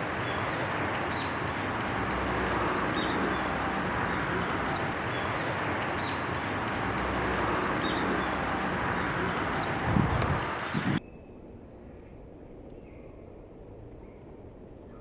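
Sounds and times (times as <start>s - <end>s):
high-pitched bird calls: 0.0s - 11.0s
outdoor background hiss: 0.0s - 11.0s.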